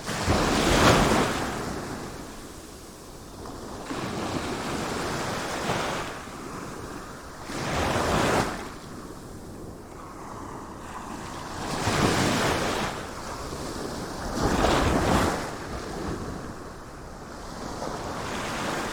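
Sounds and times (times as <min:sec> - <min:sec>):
wind: 0:00.0 - 0:18.9.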